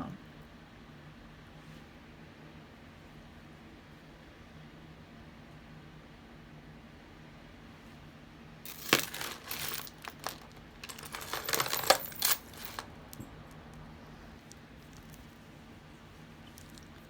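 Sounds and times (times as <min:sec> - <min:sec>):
plastic bag crinkling: 0:08.7 - 0:13.2
metal jewelry clinking: 0:08.7 - 0:13.8.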